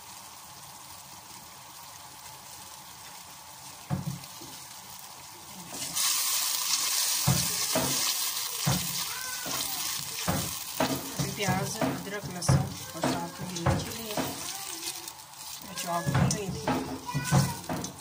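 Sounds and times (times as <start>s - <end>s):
onions sizzling in oil: 0.0s - 18.0s
spatula scraping a pot: 6.8s - 18.0s.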